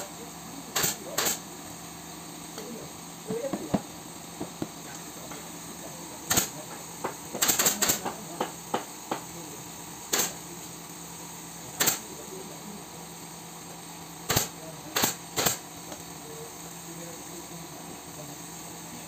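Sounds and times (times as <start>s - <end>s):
staple gun firing with hiss of air: 0.7s - 1.5s, 6.3s - 9.4s, 10.0s - 10.4s, 11.8s - 12.1s, 14.2s - 16.0s.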